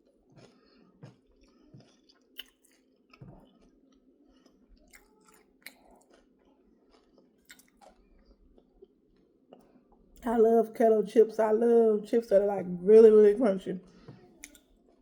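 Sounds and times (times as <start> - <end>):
chewing crisp chips: 0.0 - 9.8.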